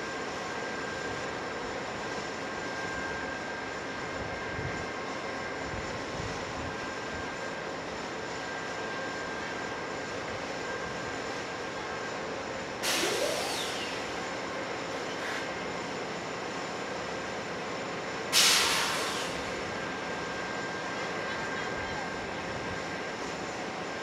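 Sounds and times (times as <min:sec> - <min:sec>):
passenger train with high whine: 0:00.0 - 0:24.0
sudden loud hiss: 0:18.3 - 0:19.6.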